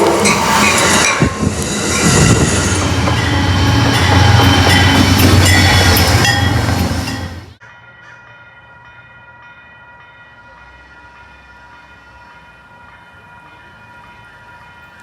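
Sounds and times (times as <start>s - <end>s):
steady high tones: 0.0s - 7.6s.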